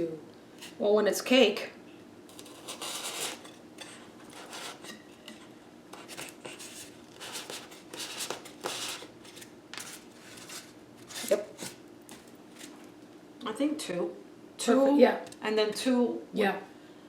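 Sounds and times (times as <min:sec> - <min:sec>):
skewers scraping foam: 0:02.4 - 0:05.0, 0:06.0 - 0:11.8.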